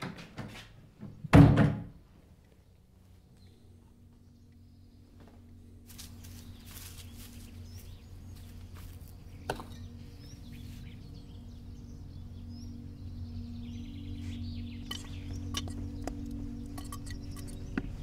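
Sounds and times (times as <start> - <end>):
low held drone: 2.6 - 18.0
rustling noises: 5.2 - 11.0
small bird chirps: 6.2 - 18.0.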